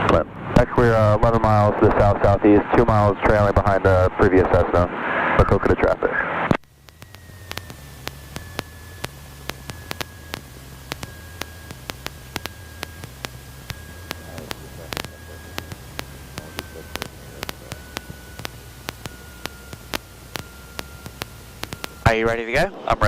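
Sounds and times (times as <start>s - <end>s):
faint high whine: 0.0s - 23.0s
low hum: 0.0s - 23.0s
electrical interference clicks: 6.5s - 22.3s
intercom hiss: 7.8s - 23.0s.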